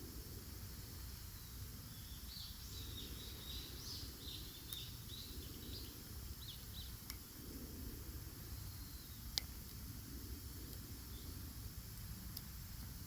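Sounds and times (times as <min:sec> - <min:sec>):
steady low rumble: 0:00.0 - 0:13.0
small bird chirping: 0:01.3 - 0:07.3, 0:08.4 - 0:09.5, 0:11.0 - 0:11.4.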